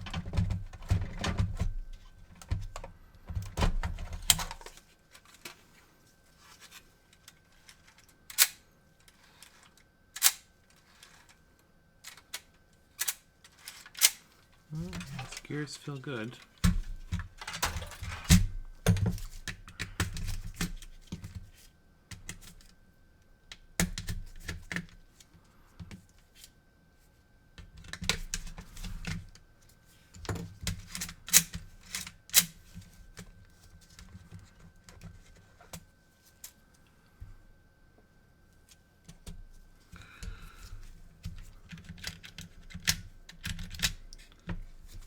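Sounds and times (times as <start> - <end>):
clicks and plastic rattles: 16.6 - 19.1.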